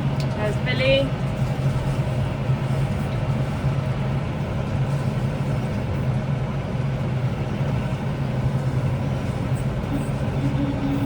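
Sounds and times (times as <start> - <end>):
tractor engine droning: 7.4 - 11.0.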